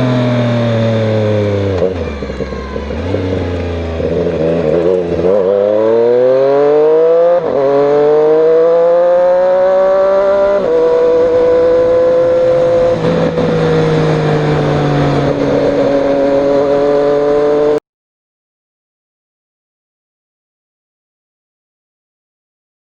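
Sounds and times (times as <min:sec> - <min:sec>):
motorcycle engine revving: 0:00.0 - 0:17.8.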